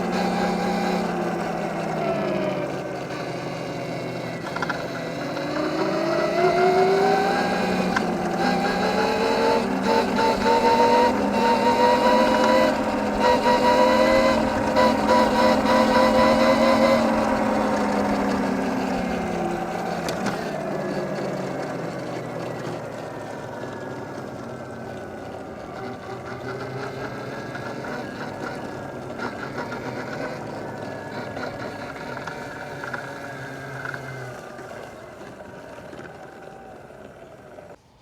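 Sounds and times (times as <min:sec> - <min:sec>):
vehicle engine driving away: 0:00.0 - 0:38.0.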